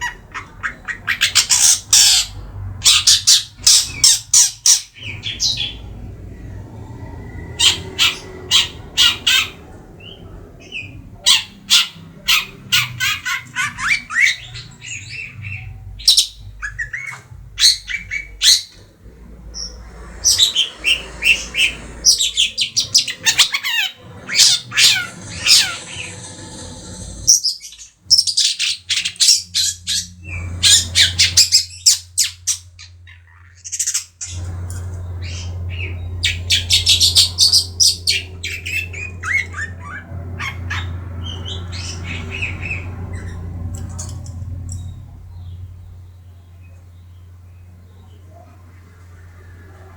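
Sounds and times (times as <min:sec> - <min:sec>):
shrike harsh scratchy calls: 0:00.0 - 0:10.2, 0:19.6 - 0:32.4, 0:35.2 - 0:44.1.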